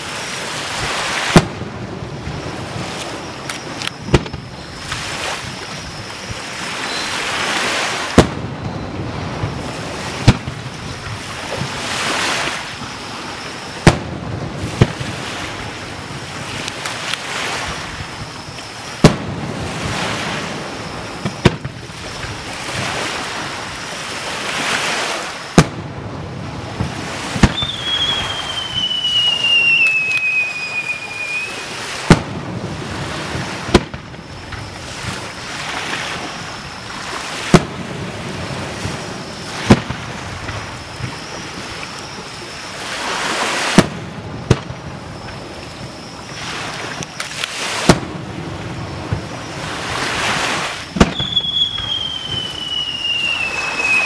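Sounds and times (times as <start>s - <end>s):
rushing hiss: 0.0s - 25.8s
falling firework whistle: 0.0s - 54.0s
firework shells bursting: 2.7s - 5.0s, 26.8s - 32.4s, 46.7s - 48.2s, 50.9s - 54.0s.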